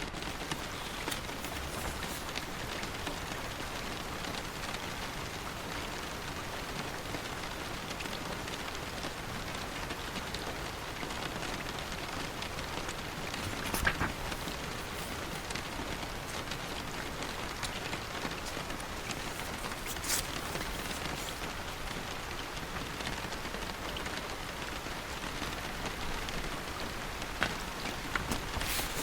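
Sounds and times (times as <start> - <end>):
paper page turning: 0.0 - 3.0, 13.0 - 22.1, 27.4 - 29.0
steady rain falling: 0.0 - 29.0.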